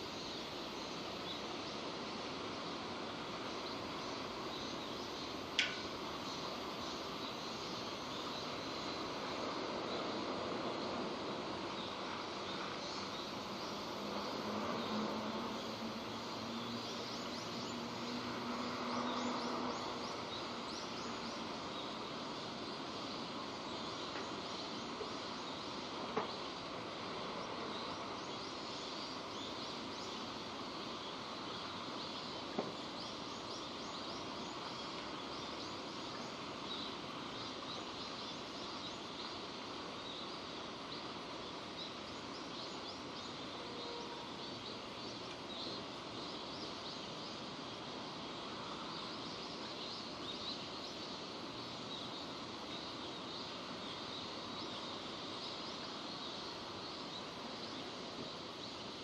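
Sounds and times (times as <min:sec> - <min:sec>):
steady rain: 0:00.0 - 0:59.0
sharp tick: 0:05.6 - 0:05.8.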